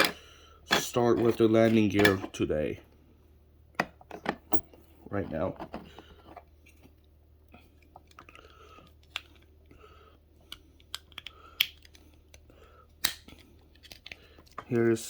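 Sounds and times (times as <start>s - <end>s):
plastic packaging clicking and crinkling: 10.5s - 14.8s.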